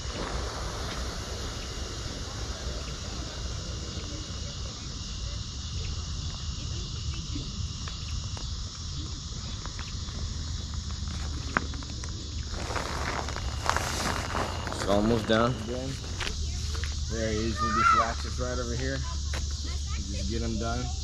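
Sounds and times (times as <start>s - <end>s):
air hissing from valve: 0.0s - 7.8s
low wind rumble: 0.0s - 11.1s, 11.7s - 19.3s
thin insect tone: 0.0s - 21.0s.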